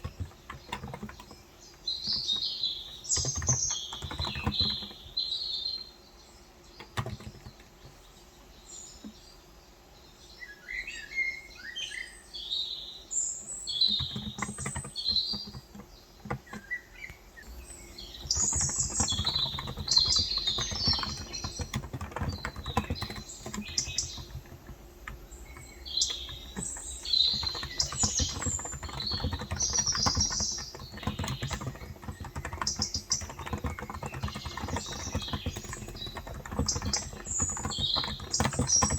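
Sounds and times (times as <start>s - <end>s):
keyboard typing: 0.0s - 5.4s, 6.8s - 8.1s, 13.7s - 38.9s
small birds chirping: 0.0s - 38.9s.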